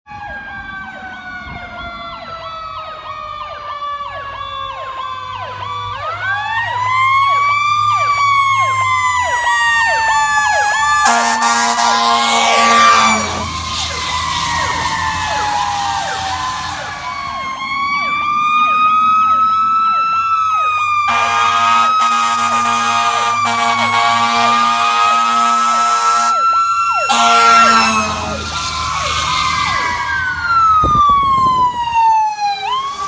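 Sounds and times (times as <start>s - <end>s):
emergency sirens yelping and wailing: 0.1s - 33.0s
loud air horn blast: 11.0s - 17.1s, 21.0s - 30.3s.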